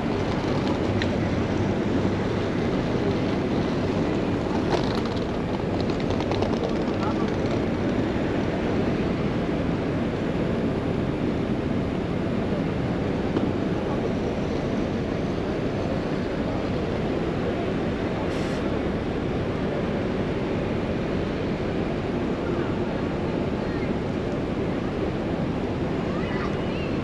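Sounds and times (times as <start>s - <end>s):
city street traffic rumble: 0.0s - 27.0s.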